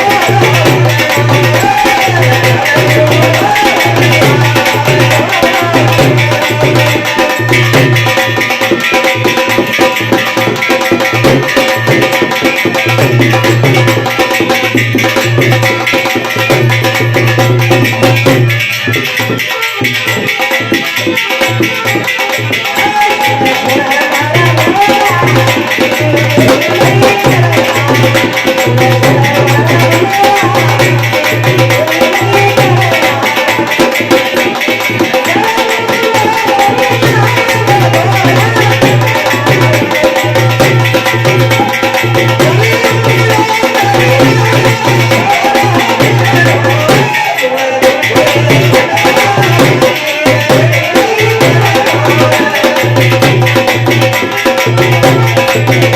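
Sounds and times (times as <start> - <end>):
devotional song: 0.0 - 18.4, 20.6 - 55.9
hand drum percussion: 0.0 - 55.9.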